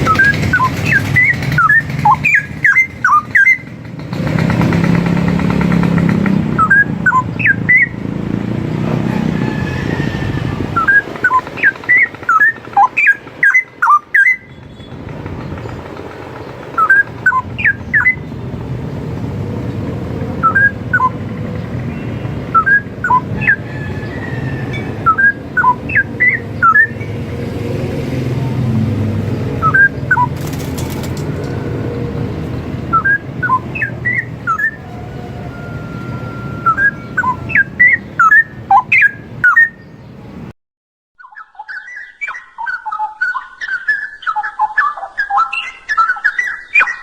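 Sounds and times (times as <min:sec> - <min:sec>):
bird singing whistled notes: 0:00.0 - 0:03.7, 0:06.6 - 0:08.1, 0:10.8 - 0:15.0, 0:16.8 - 0:18.4, 0:20.4 - 0:21.1, 0:21.9 - 0:27.1, 0:29.6 - 0:30.9, 0:32.9 - 0:40.1, 0:41.2 - 0:47.0.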